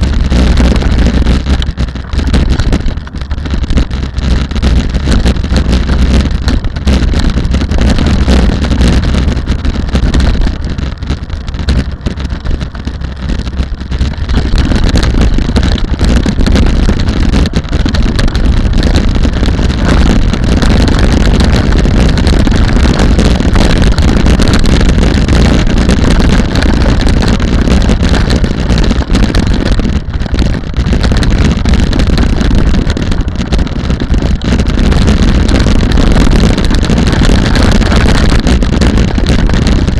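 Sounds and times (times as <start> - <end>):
road noise: 0.0 - 39.9
wind buffeting microphone: 0.0 - 39.9.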